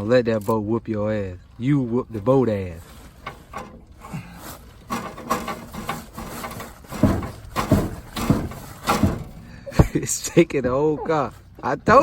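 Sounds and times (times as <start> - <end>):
hand tools clanking and scraping: 1.8 - 12.0
heavy thumps: 3.2 - 10.8.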